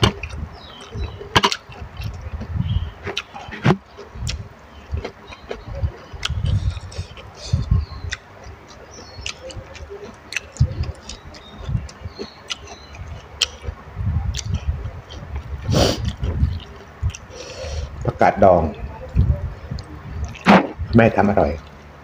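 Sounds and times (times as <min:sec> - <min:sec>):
person chewing noodles: 0:03.1 - 0:18.0.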